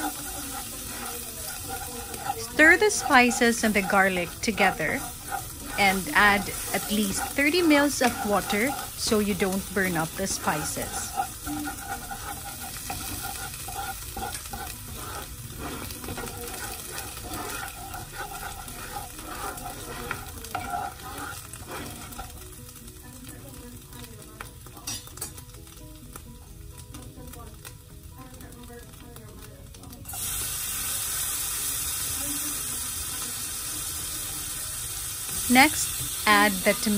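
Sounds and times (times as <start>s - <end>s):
wooden spoon scraping a pan: 0.0s - 22.6s
light sizzle: 0.0s - 36.9s.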